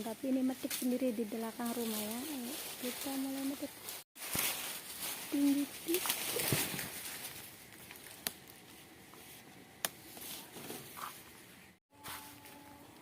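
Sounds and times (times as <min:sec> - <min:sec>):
leaves rustling: 0:00.0 - 0:13.0
stalks snapping: 0:07.7 - 0:08.6.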